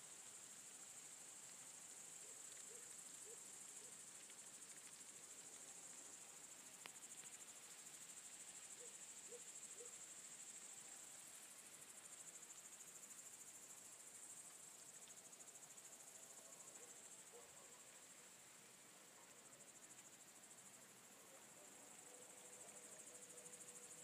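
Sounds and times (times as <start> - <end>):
crickets chirring: 19.4 - 24.0.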